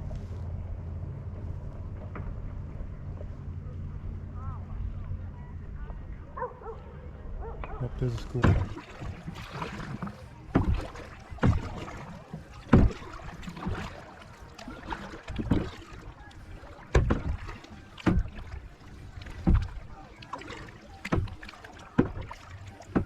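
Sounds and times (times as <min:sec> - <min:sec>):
wash of moving water: 0:00.0 - 0:23.0
paddle splashing against water: 0:07.5 - 0:23.0.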